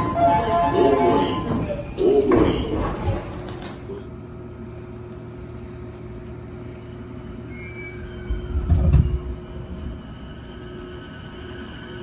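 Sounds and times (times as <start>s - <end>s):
train rumble: 0.0s - 4.4s, 8.1s - 12.0s.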